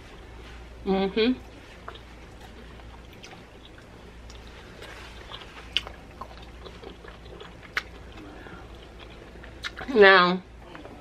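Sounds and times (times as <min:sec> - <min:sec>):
person chewing food: 0:01.4 - 0:10.0.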